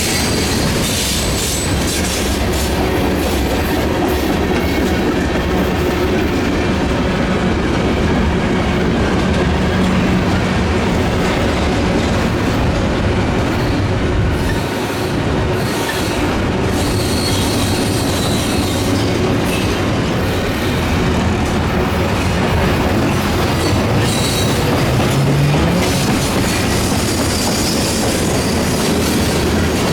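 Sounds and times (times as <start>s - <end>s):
train wheels on rails: 0.0s - 29.9s.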